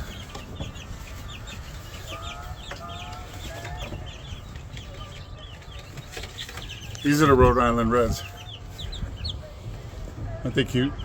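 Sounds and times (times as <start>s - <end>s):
baby chicks peeping: 0.0s - 11.0s
steady low rumble: 7.2s - 11.0s.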